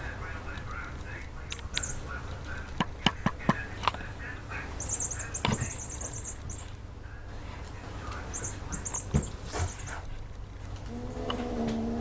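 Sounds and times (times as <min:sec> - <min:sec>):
small bird chirping: 0:01.5 - 0:02.2, 0:04.8 - 0:06.8, 0:08.3 - 0:10.0.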